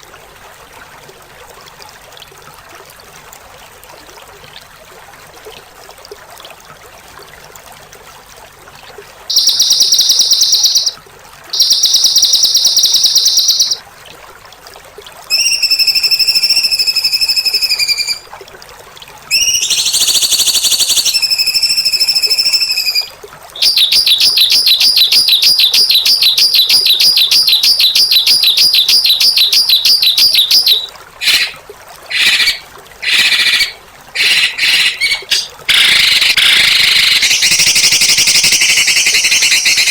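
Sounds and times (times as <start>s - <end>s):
songbird harsh rasping trills: 9.3s - 11.0s, 11.6s - 13.8s, 15.3s - 18.2s, 19.3s - 39.9s
bird whistled call: 9.3s - 13.8s, 15.3s - 18.3s, 19.3s - 39.9s.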